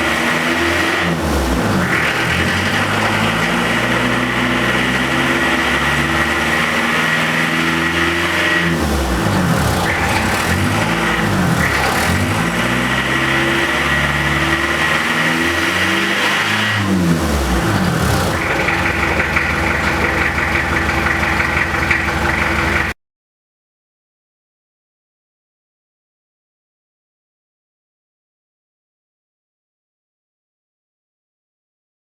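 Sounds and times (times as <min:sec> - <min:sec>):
diesel car engine revving: 0:00.0 - 0:23.0.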